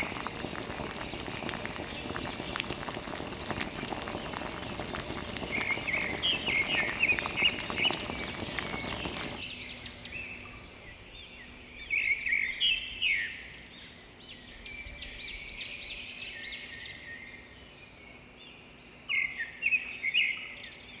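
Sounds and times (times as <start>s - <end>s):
birds chirping: 0.0s - 10.5s.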